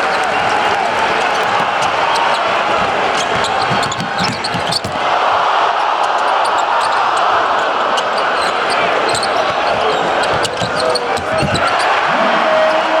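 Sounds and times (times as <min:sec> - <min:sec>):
arena crowd noise: 0:00.0 - 0:13.0
basketball dribbling on hardwood: 0:01.2 - 0:05.0, 0:09.1 - 0:12.0.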